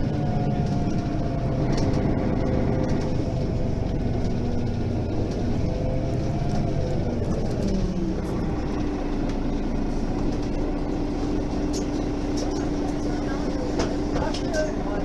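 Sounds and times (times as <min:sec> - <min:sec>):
bus diesel engine rumbling: 0:00.0 - 0:15.0.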